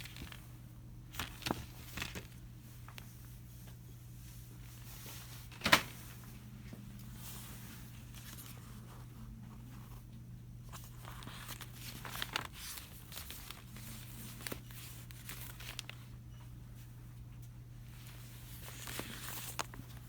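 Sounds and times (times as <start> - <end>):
packaged items rustling: 0.0 - 0.5, 1.1 - 3.1, 10.7 - 16.2, 17.9 - 20.0
low electrical hum: 0.0 - 20.0.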